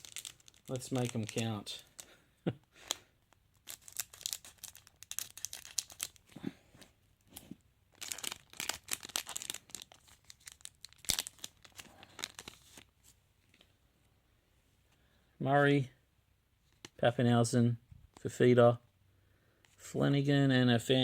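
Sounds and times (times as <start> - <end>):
wrapper tearing and crinkling: 0.0 - 2.0, 2.9 - 6.3, 8.0 - 12.8.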